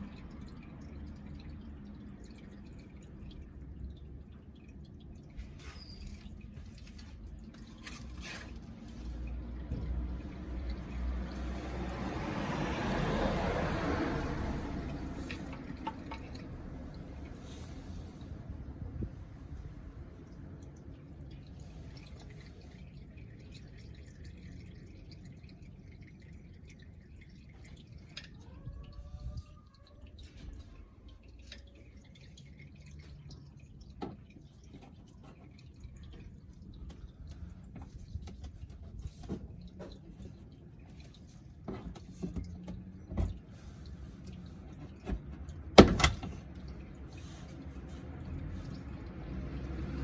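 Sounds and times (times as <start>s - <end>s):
oil dripping into a pan: 0.0s - 18.9s, 19.6s - 50.0s
faint rising squeak: 5.6s - 6.3s.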